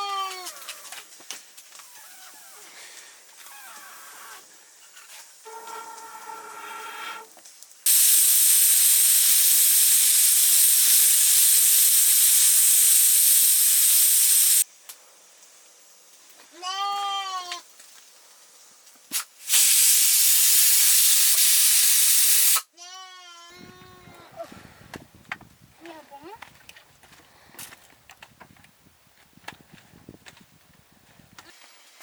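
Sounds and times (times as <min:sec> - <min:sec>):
loud even hissing: 0:07.8 - 0:14.7, 0:19.1 - 0:22.7.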